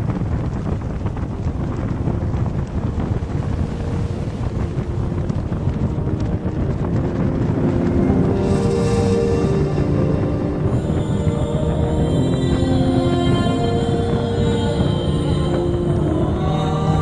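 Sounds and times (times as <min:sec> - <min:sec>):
boat engine rumble: 0:00.0 - 0:17.0
wind buffeting microphone: 0:00.0 - 0:17.0
music: 0:02.0 - 0:17.0.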